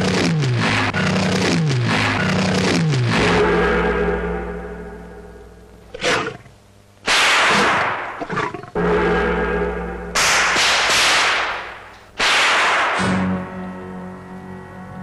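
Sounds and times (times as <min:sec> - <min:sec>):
low booming tone: 0:00.0 - 0:06.6, 0:08.1 - 0:10.5
cymbal and gong crashes: 0:03.1 - 0:05.7, 0:08.8 - 0:13.5.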